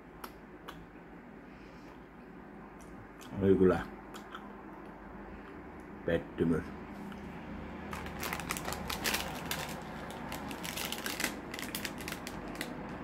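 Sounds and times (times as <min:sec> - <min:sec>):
person chewing with wet mouth clicks: 0:00.2 - 0:00.9, 0:04.1 - 0:05.6.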